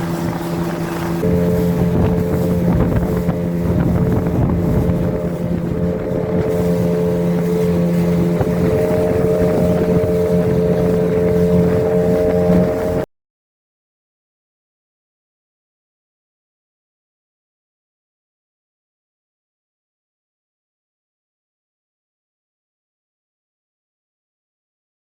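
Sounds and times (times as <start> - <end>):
water rushing: 0.0 - 13.0
motorboat engine running: 0.0 - 13.1
wind noise on microphone: 0.0 - 13.1.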